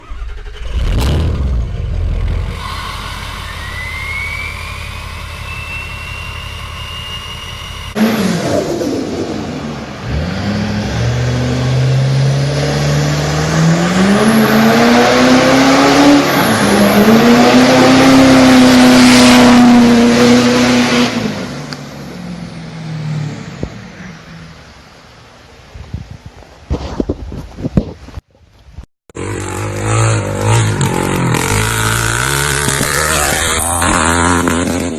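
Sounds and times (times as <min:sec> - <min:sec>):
truck accelerating hard: 0:00.0 - 0:24.7, 0:29.2 - 0:34.9
truck engine rumble: 0:00.0 - 0:28.1, 0:28.7 - 0:34.9
rising whistle: 0:02.5 - 0:08.7.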